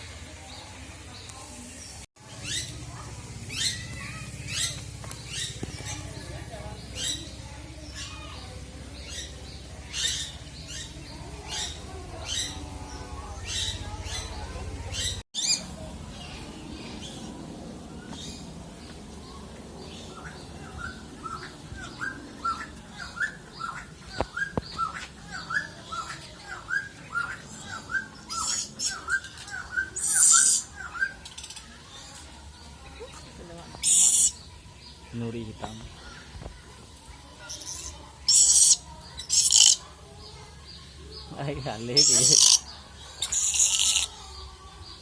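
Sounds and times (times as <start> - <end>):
high bird chirps: 19.8 - 32.1, 33.7 - 35.0, 37.4 - 39.9, 41.7 - 44.4
harsh bird squawks: 26.6 - 31.2, 33.8 - 34.4, 37.8 - 39.8, 42.0 - 44.2.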